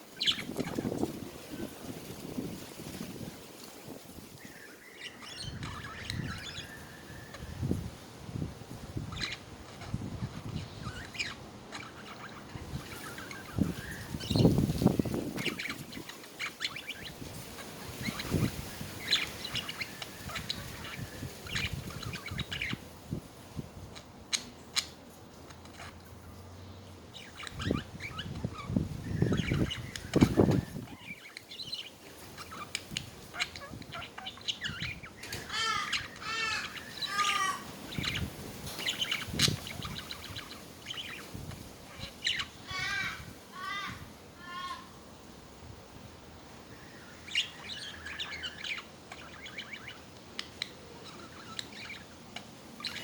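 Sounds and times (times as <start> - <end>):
budgerigars chirping: 0.1 - 2.4, 4.4 - 7.8, 9.0 - 22.9, 23.9 - 43.9, 46.7 - 53.0
budgerigar warbling: 32.4 - 41.2.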